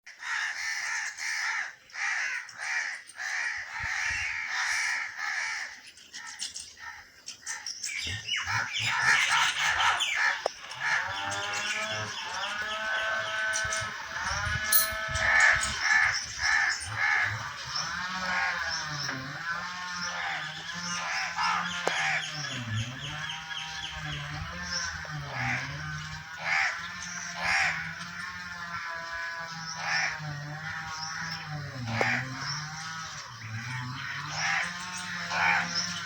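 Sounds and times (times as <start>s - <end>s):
crows cawing: 0.1s - 7.7s, 8.3s - 24.0s, 24.7s - 36.0s.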